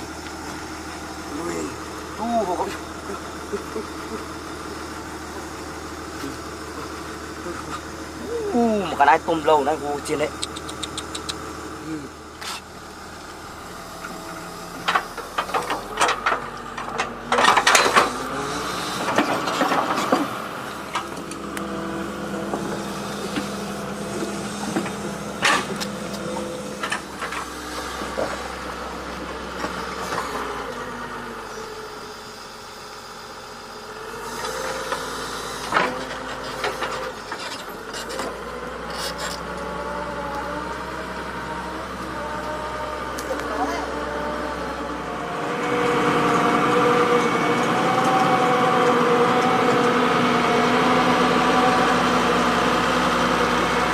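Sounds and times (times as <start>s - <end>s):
excavator engine running: 0.0s - 53.9s
knocks and clanks: 14.8s - 18.2s
whine shifting in pitch: 38.9s - 53.9s.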